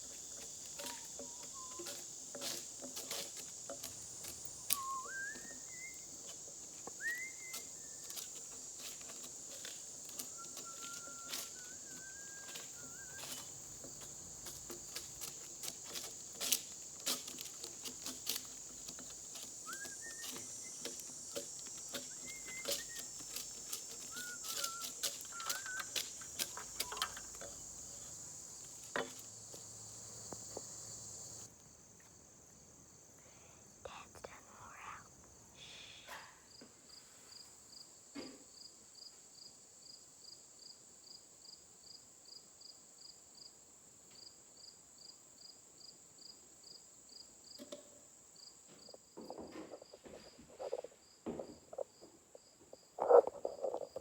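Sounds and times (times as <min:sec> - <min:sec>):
shrill chorus of crickets: 0:00.0 - 0:54.0
short rising whistled calls: 0:00.8 - 0:02.0, 0:04.6 - 0:08.3, 0:10.1 - 0:13.6, 0:19.6 - 0:21.1, 0:21.9 - 0:27.3.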